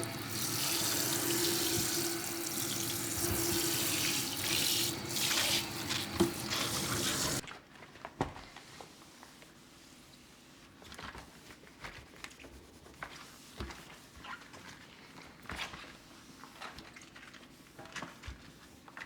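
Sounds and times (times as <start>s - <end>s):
tap water running into sink: 0.0s - 7.4s.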